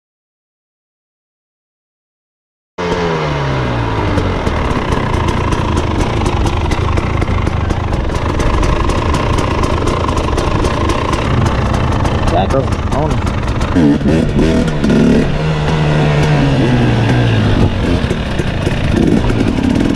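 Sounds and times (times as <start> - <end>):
dirt bike engine idling: 2.8 - 19.9.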